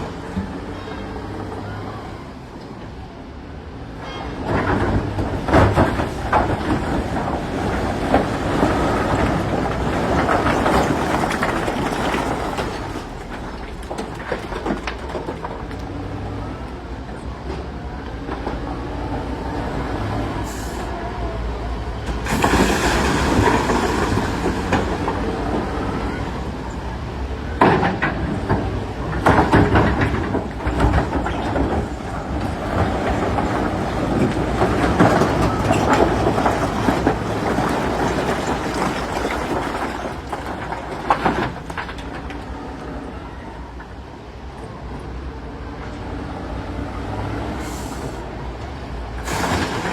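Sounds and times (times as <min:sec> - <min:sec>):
heavy diesel engine under load: 0:00.0 - 0:49.9
rocks grinding and clattering: 0:04.5 - 0:16.2, 0:22.2 - 0:25.8, 0:27.6 - 0:43.1, 0:49.2 - 0:49.9.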